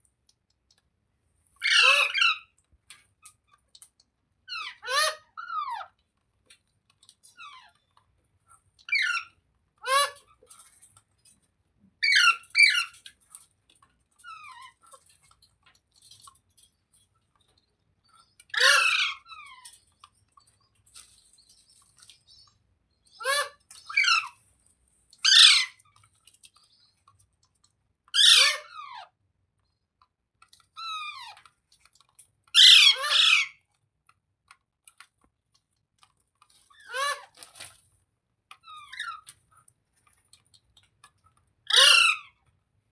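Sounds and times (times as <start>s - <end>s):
parrot chirping: 22.2s - 24.4s, 25.2s - 25.8s, 32.6s - 33.5s.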